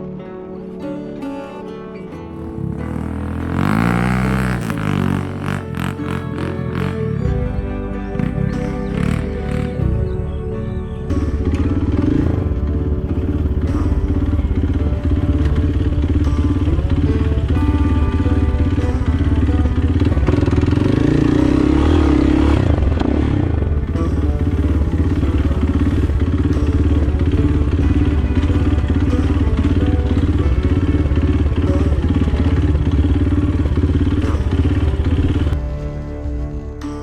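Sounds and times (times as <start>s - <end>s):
acoustic guitar music: 0.0s - 37.0s
motorcycle engine running: 2.4s - 35.6s.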